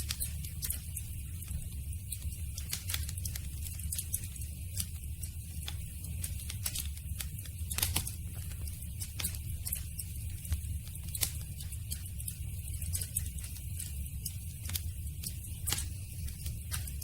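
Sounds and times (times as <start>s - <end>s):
campfire crackling: 0.0s - 17.0s
low rumble of flames: 0.0s - 17.0s
sharp fire pops: 2.2s - 9.8s, 12.9s - 17.0s.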